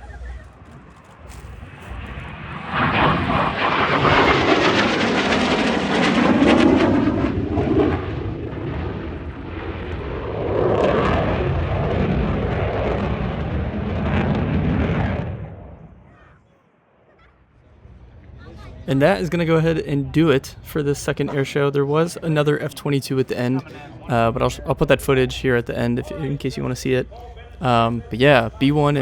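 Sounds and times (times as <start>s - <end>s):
jet passing overhead: 0.0s - 16.3s.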